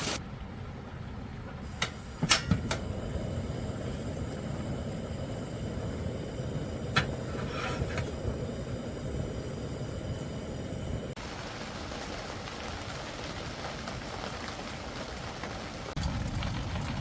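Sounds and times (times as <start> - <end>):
wind: 0.0 - 17.0
sharp clicks and knocks: 1.8 - 2.9
rain on a tent: 11.1 - 17.0.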